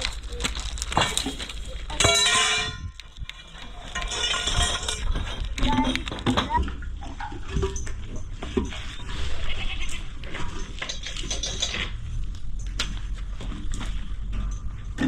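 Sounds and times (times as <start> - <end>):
knocks and clatter: 0.0 - 9.0, 10.2 - 15.0
farm animals bleating: 9.0 - 10.3.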